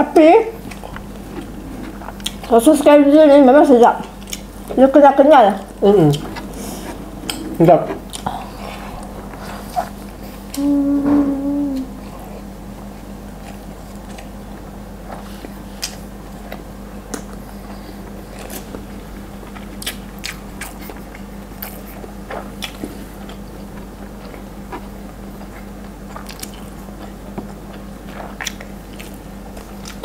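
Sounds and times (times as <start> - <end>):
low hum: 0.0 - 25.5
chewing and crunching food: 0.6 - 2.8, 3.8 - 4.9, 12.0 - 30.0.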